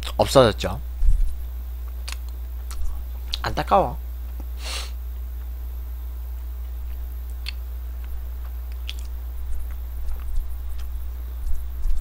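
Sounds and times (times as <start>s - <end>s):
steady low hum: 0.0s - 12.0s
person chewing close to microphone: 1.8s - 3.4s, 6.6s - 12.0s
faint mouth clicks: 2.0s - 3.4s, 7.3s - 10.9s.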